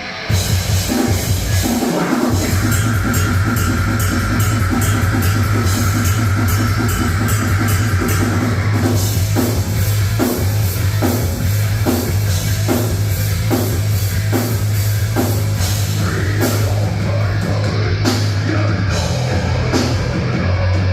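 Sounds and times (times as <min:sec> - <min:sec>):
live rock band playing: 0:00.0 - 0:20.9.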